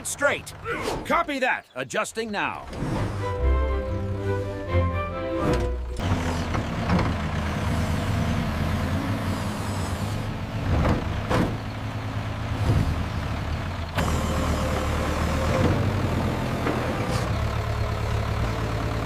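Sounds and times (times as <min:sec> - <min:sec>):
diesel engine running: 0:00.0 - 0:01.2, 0:02.5 - 0:19.0.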